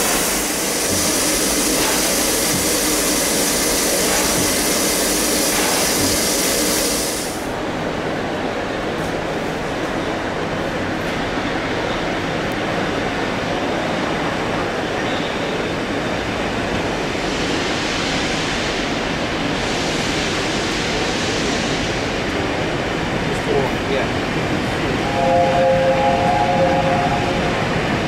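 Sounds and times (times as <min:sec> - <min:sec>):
hiss: 0:00.0 - 0:07.5, 0:16.8 - 0:22.7
train wheels rumbling on track: 0:00.0 - 0:28.0.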